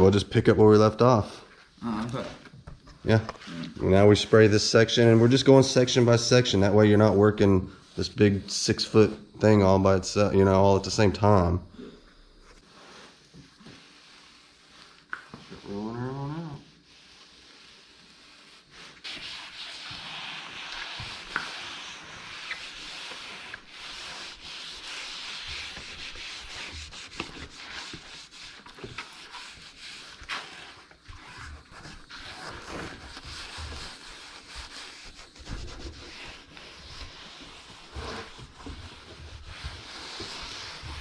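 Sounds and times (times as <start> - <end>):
fabric rubbed by hand: 12.3 - 41.0.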